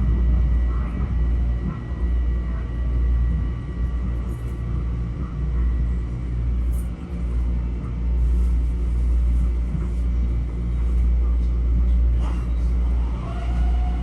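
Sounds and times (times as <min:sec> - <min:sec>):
faint equipment whine: 0:00.0 - 0:14.0
train cabin low rumble: 0:00.0 - 0:14.0.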